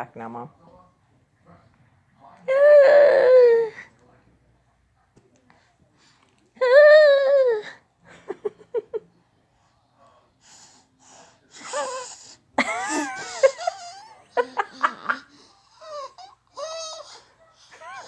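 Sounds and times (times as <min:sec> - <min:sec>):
baby breathy wheezing: 0:14.7 - 0:18.0.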